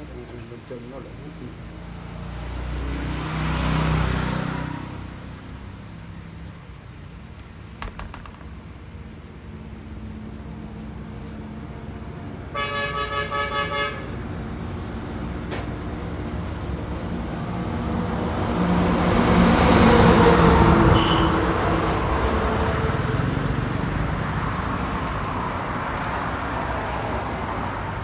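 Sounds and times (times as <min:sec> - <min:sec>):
vehicle passing by: 0:02.0 - 0:05.8.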